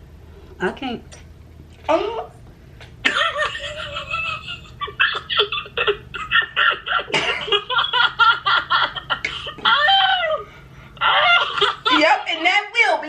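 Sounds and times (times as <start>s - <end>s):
person laughing hard: 3.1s - 12.2s.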